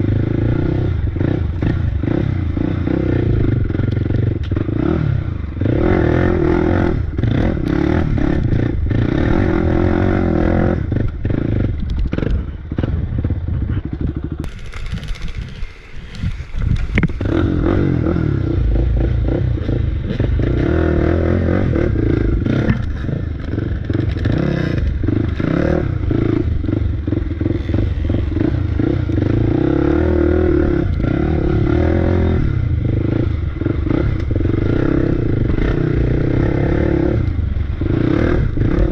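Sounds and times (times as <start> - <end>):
off-road bike engine revving: 0.0 - 38.9.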